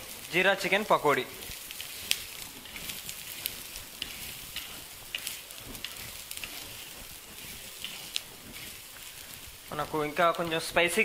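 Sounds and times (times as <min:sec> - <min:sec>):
crackles and pops: 0:00.0 - 0:11.0
food sizzling in oil: 0:00.0 - 0:11.0
spatula stirring: 0:00.1 - 0:11.0.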